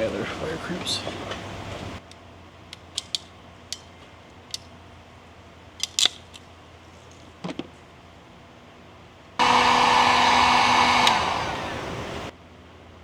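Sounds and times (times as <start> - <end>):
crimping tool clicks and snaps: 2.7 - 3.9, 5.8 - 6.4.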